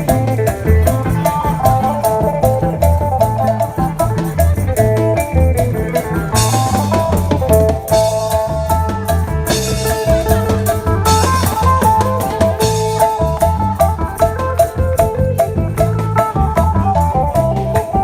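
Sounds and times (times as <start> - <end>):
bass: 0.0 - 18.0
drum kit: 0.0 - 18.0
plucked lute melody: 0.0 - 18.0.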